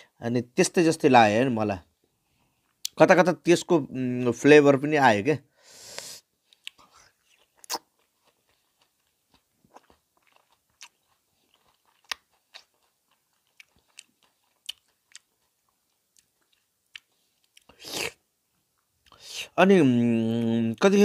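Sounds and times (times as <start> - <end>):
person chewing soft fruit: 6.4 - 20.6
wet mouth clicks: 6.5 - 7.9.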